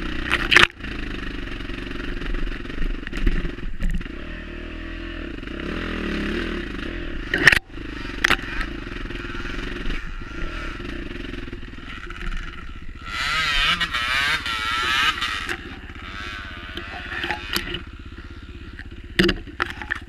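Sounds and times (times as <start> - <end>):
dirt bike engine revving: 0.0 - 20.0
sharp clatter: 0.2 - 0.9, 7.2 - 20.0.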